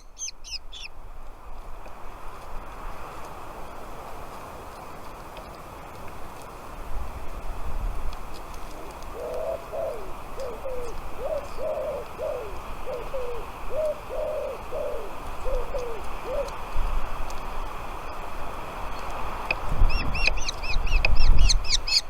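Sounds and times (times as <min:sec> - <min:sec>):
bird calling low notes: 0:08.8 - 0:16.6.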